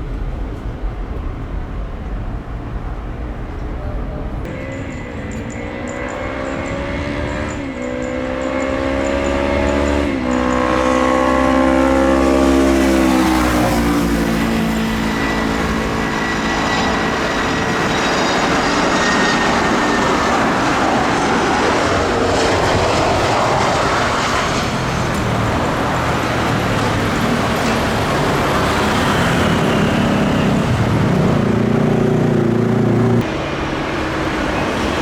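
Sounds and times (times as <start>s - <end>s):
jet aircraft roar: 0.0s - 35.0s
vehicle engine accelerating: 4.4s - 35.0s.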